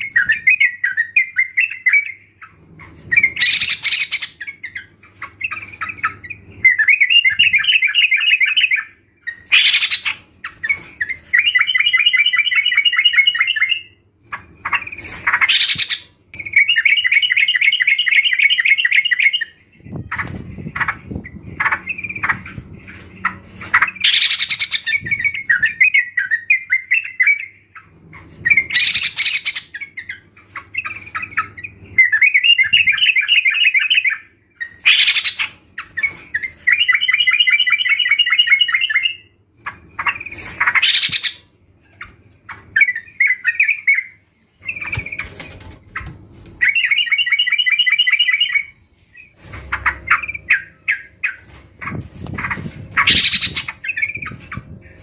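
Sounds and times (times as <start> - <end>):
bulbuls calling: 42.5 - 55.0.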